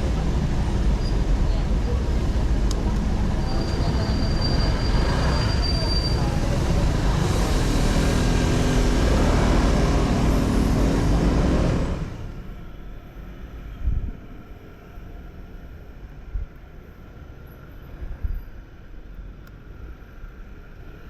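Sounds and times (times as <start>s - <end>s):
motorcycle engine and road noise: 0.0s - 13.2s.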